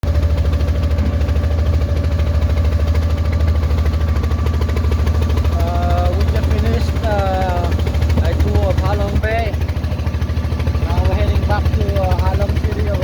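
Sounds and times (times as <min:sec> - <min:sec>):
boat engine throbbing: 0:00.0 - 0:13.0
person speaking: 0:05.5 - 0:09.6, 0:10.8 - 0:13.0.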